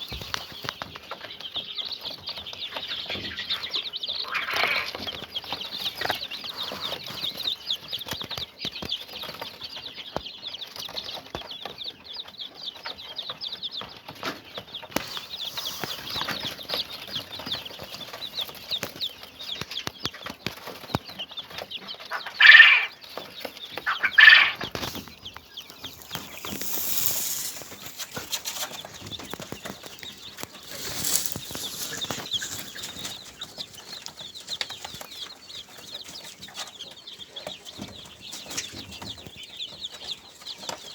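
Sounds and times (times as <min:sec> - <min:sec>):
loud bird calls: 0:00.0 - 0:08.8, 0:20.9 - 0:40.9
birds chirping and calling: 0:00.0 - 0:40.9
rustling: 0:23.2 - 0:36.7.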